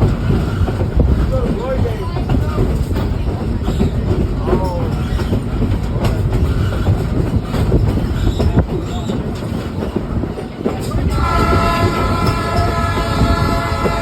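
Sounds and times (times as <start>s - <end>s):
train rumbling over rails: 0.0s - 14.0s
locomotive horn blast: 11.1s - 14.0s.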